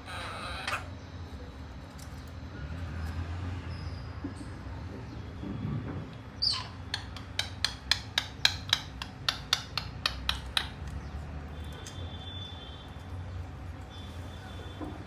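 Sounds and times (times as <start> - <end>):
rapid sharp taps: 7.0 - 10.8.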